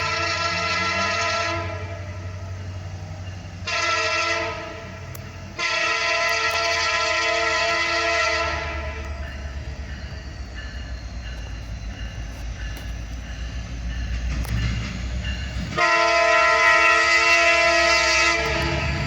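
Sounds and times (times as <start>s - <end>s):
locomotive horn chord: 0.0s - 2.4s, 3.6s - 9.1s, 15.6s - 19.0s
diesel locomotive rumble: 0.0s - 19.0s.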